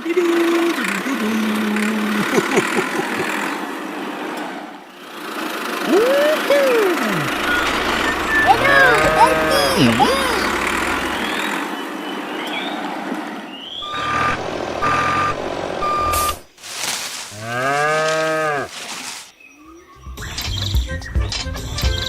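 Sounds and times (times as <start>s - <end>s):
cow mooing: 7.3s - 11.5s, 17.4s - 18.7s
vehicle reversing alarm beeps: 7.3s - 11.6s, 13.7s - 16.5s.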